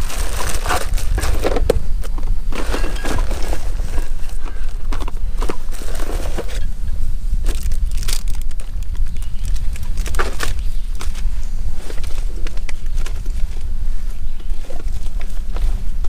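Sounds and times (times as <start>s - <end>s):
objects clicking and rustling: 0.0s - 6.7s
loud low rumble: 6.6s - 14.0s.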